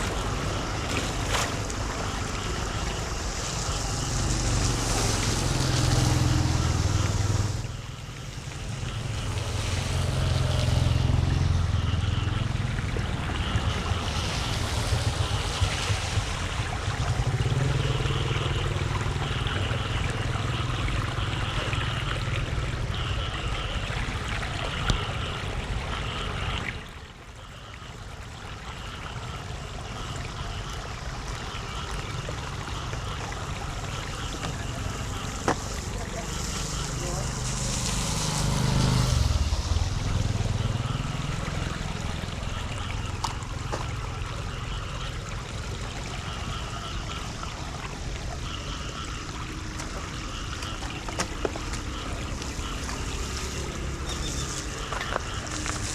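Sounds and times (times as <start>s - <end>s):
wind rumbling on microphone: 0.0s - 26.9s
floodwater splashing: 0.0s - 55.9s.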